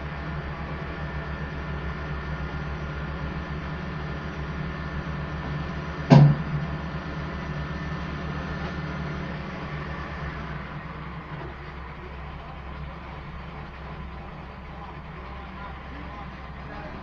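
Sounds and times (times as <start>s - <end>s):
machinery engine running: 0.0s - 17.0s
loud metal bang: 6.1s - 6.8s.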